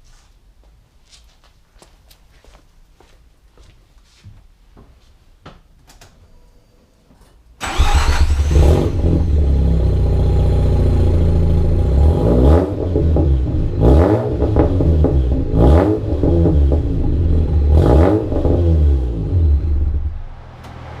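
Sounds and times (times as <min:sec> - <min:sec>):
rotary engine starting and idling: 0:07.6 - 0:10.9
engine throttle blips: 0:07.6 - 0:21.0.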